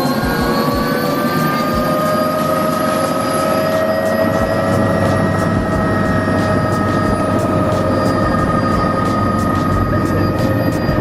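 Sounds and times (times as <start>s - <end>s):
helicopter whine and drone: 0.0s - 11.0s
rotor beat: 0.0s - 11.0s.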